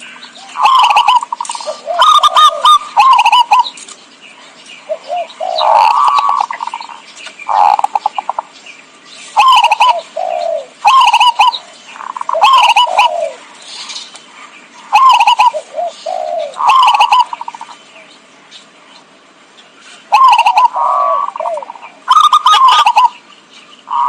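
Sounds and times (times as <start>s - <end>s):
dove cooing: 0.0s - 3.8s, 4.9s - 8.5s, 9.3s - 13.8s, 14.9s - 17.8s, 20.1s - 23.3s.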